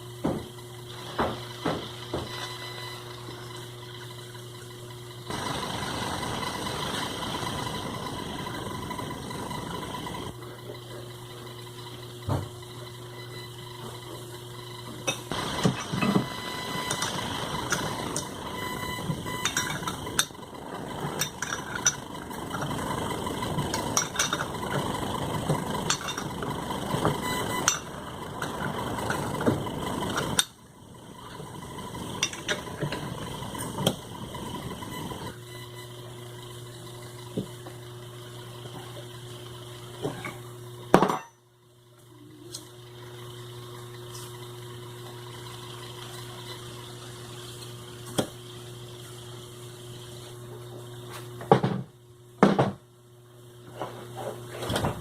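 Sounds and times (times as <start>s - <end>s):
sewing machine motor humming: 5.3s - 10.8s, 14.8s - 35.4s.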